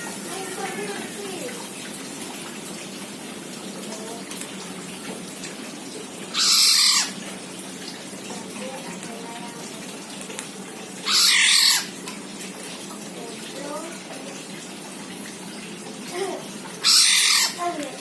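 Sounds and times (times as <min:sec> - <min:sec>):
oriole harsh calls: 0:06.3 - 0:07.2, 0:11.0 - 0:12.0, 0:16.7 - 0:17.8.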